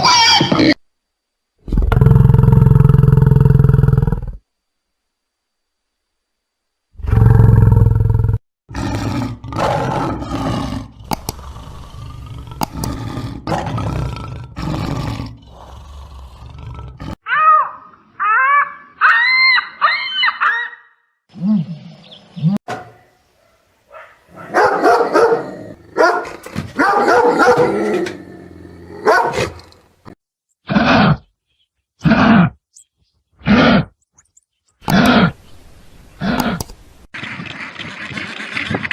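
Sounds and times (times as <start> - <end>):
loud low animal roar: 1.6 - 4.4, 7.0 - 17.2, 24.8 - 29.8, 30.6 - 31.3, 32.0 - 32.6, 33.4 - 33.9
rough animal calls: 8.7 - 21.0
high rising and falling cries: 17.2 - 20.9.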